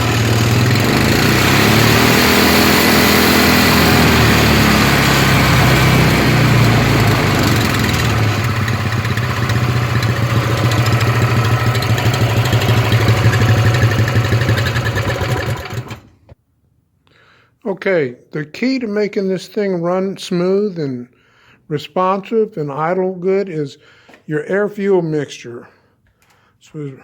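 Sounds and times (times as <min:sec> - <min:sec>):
small engine idling: 0:00.0 - 0:16.3.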